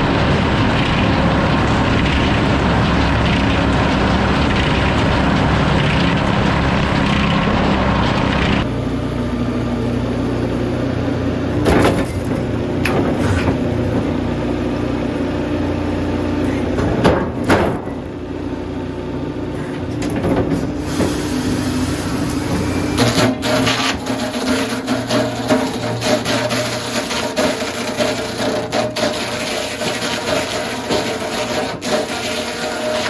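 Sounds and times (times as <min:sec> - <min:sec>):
sawmill machinery droning: 0:00.0 - 0:33.0
sharp clanks and knocks: 0:11.5 - 0:14.4, 0:16.4 - 0:18.1, 0:19.6 - 0:21.2.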